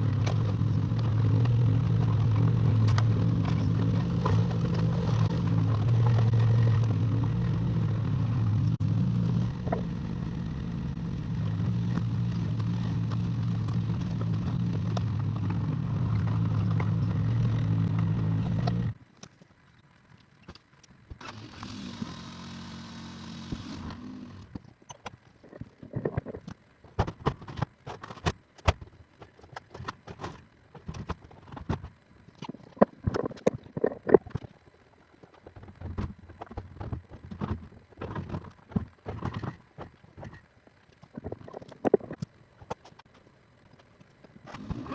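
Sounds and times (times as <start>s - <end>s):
diesel engine running: 0.0s - 19.0s
quiet motor humming: 0.0s - 22.2s
knocks and clatter: 35.2s - 40.4s.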